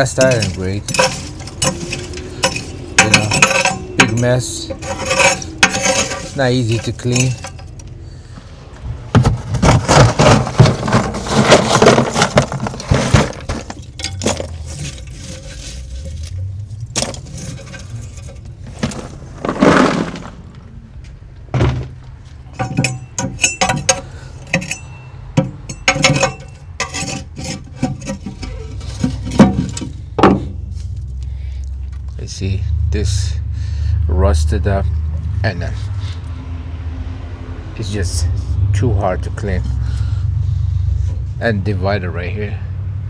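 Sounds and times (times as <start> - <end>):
metal grill parts clanking: 0.0 - 31.2.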